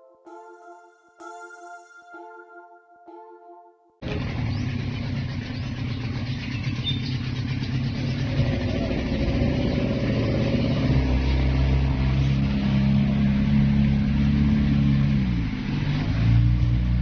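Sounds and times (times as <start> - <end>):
music tune: 0.0 - 4.0.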